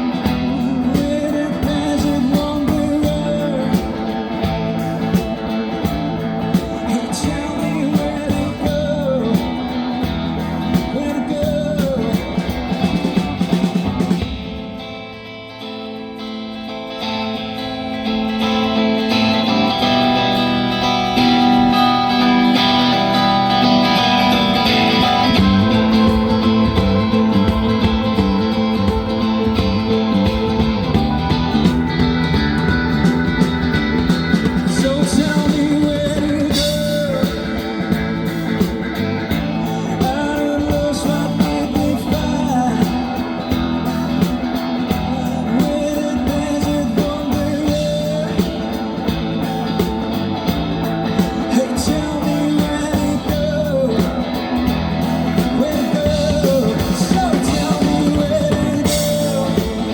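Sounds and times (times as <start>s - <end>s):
person singing: 0.0s - 14.5s, 18.4s - 59.9s
live rock band: 0.0s - 59.9s.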